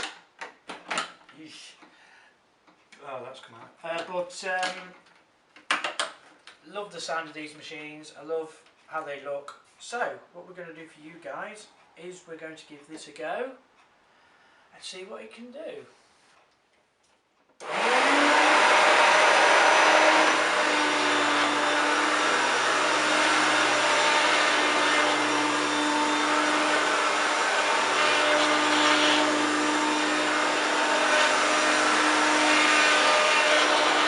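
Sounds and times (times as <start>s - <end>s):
vacuum cleaner motor whirring: 17.6s - 34.0s.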